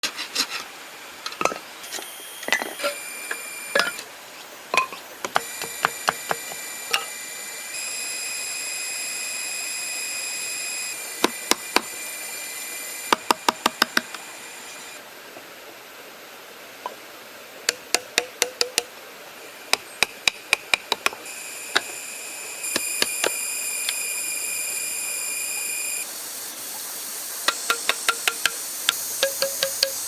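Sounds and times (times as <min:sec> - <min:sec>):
faint high steady whine: 0:01.4 - 0:16.7, 0:21.1 - 0:30.0
sharp knocks and taps: 0:05.2 - 0:06.6, 0:17.7 - 0:18.9, 0:27.5 - 0:30.0.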